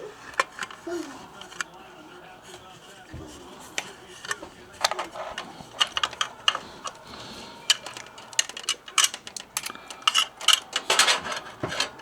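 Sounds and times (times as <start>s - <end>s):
small hard parts clicking: 3.8s - 12.0s.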